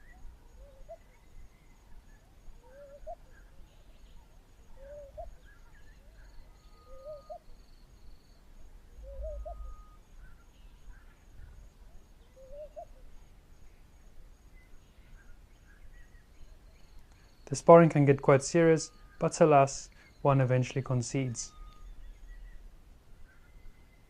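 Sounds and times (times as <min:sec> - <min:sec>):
bird low rising call: 0:04.7 - 0:07.6, 0:08.9 - 0:11.6, 0:12.3 - 0:13.0, 0:21.3 - 0:24.0.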